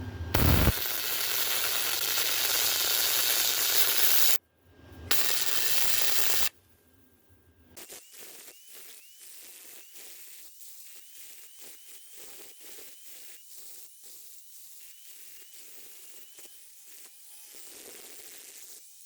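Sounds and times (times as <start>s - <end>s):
welder sizzling crackle: 0.3s - 4.4s, 5.1s - 6.5s, 7.8s - 19.0s
sharp pops from welding arc: 0.4s - 4.4s, 5.1s - 6.5s.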